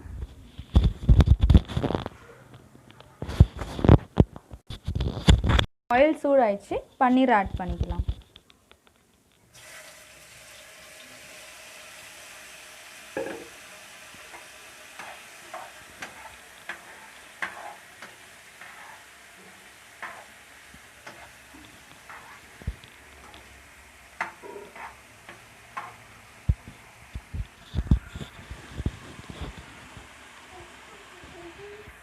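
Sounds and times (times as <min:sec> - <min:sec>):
cheese sizzling in hot oil: 0:09.5 - 0:27.6, 0:28.4 - 0:32.0
knocks and clinks in pan: 0:13.2 - 0:13.5.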